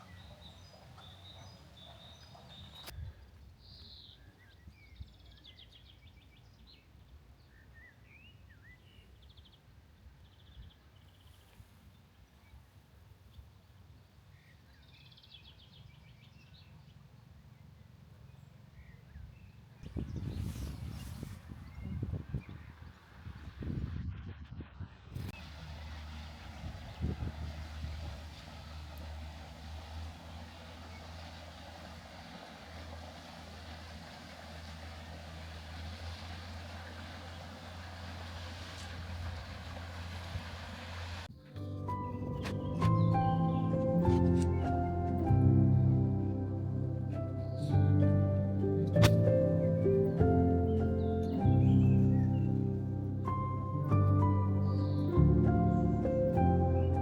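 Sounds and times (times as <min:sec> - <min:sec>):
bird trilling chirps: 0:00.0 - 0:02.9
road or wind noise: 0:16.6 - 0:57.0
low steady rumble: 0:19.8 - 0:57.0
low engine drone: 0:25.0 - 0:57.0.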